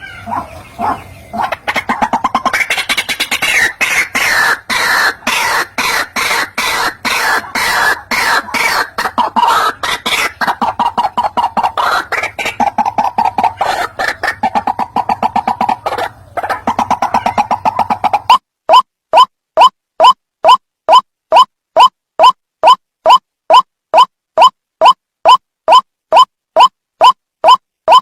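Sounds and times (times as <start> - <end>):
bird harsh croaking notes: 0.0 - 18.4.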